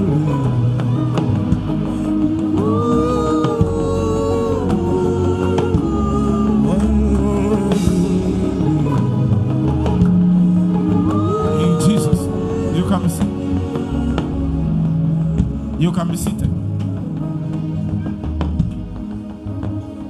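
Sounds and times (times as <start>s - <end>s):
keyboard chords: 0.0s - 20.0s.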